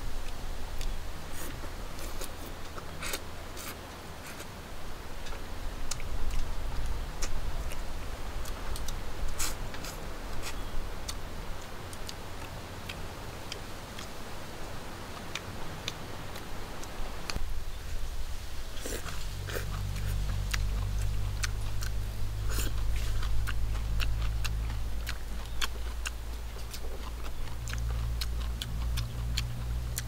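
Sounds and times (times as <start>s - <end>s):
steady low rumble: 0.0s - 30.0s
chewing clicks and snaps: 5.2s - 14.2s, 18.8s - 30.0s.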